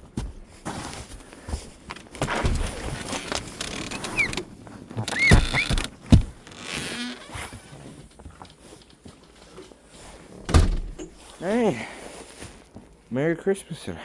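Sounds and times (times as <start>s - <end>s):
heavy thumps: 1.5s - 7.3s, 10.4s - 11.2s
short high squeaks: 3.1s - 4.4s, 5.0s - 7.5s.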